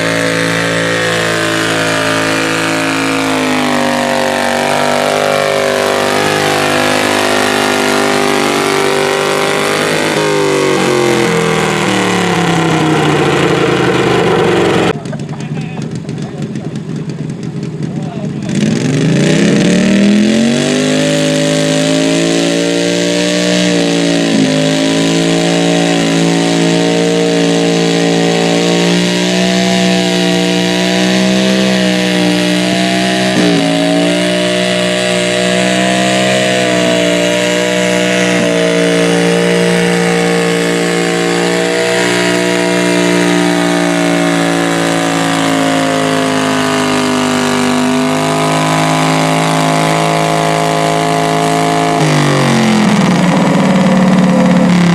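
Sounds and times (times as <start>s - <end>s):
tractor engine at full throttle: 0.0s - 54.9s.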